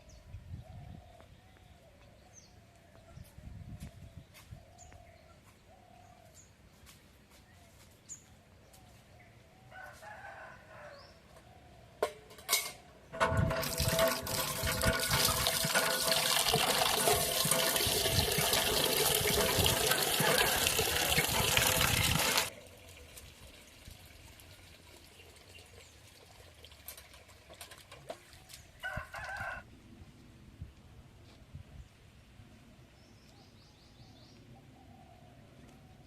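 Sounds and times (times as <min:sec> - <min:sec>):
water pouring: 0:13.1 - 0:28.6.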